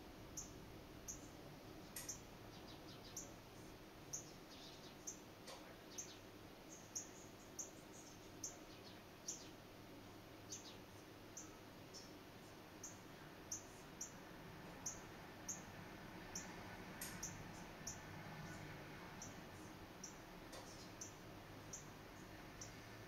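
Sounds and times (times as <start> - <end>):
bird chirping: 0.3 - 3.4, 4.1 - 5.2, 5.8 - 9.6, 10.4 - 12.2, 12.8 - 14.2, 14.8 - 15.7, 16.3 - 19.4, 20.0 - 22.8.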